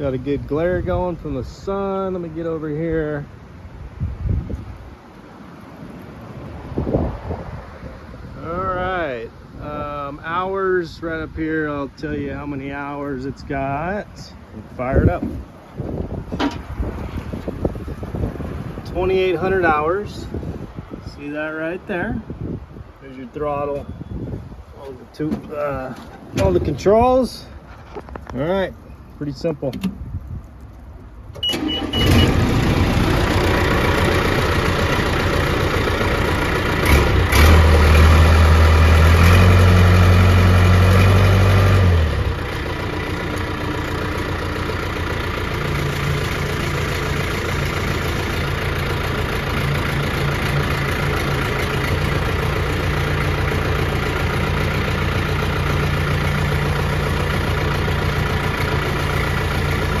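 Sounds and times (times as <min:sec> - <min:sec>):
diesel engine starting and revving: 0:06.3 - 0:21.0, 0:31.3 - 1:00.0
short beep: 0:31.4 - 0:32.4.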